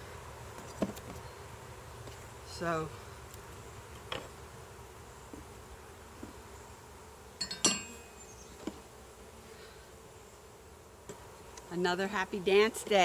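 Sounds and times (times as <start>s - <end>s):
honeybees buzzing: 0.0s - 13.0s
ringing clink: 7.4s - 8.1s.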